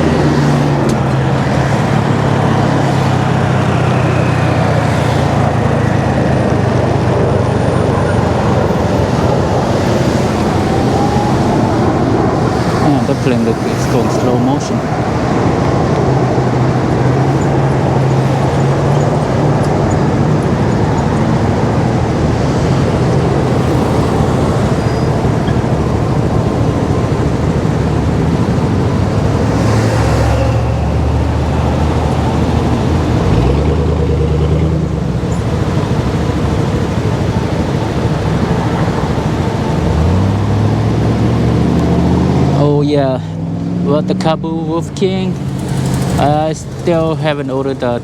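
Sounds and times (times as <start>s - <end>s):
wind and road noise: 0.0s - 48.0s.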